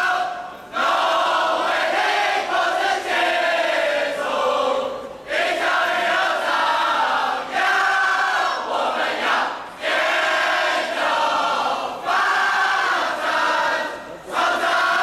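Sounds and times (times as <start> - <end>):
group singing in unison: 0.0 - 15.0.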